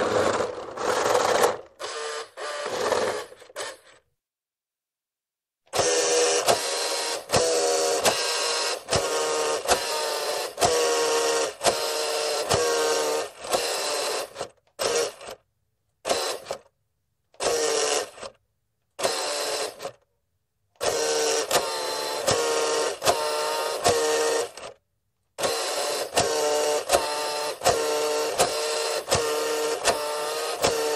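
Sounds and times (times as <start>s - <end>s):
toy electric motor whining: 0.0s - 4.1s, 5.7s - 15.4s, 16.0s - 16.7s, 17.4s - 18.4s, 19.0s - 20.0s, 20.8s - 24.8s, 25.4s - 30.9s.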